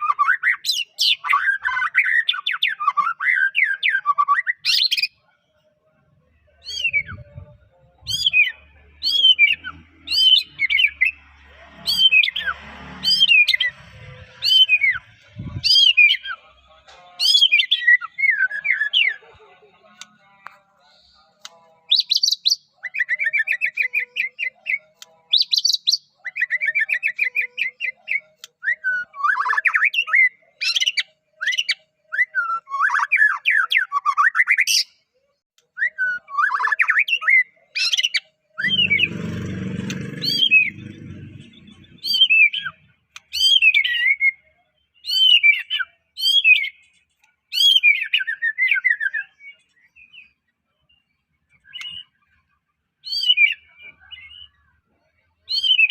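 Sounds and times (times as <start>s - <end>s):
bird singing trills and whistles: 6.6s - 11.2s, 14.4s - 16.4s, 21.9s - 35.0s, 41.5s - 46.9s, 47.5s - 52.4s, 53.0s - 54.6s, 55.5s - 55.9s.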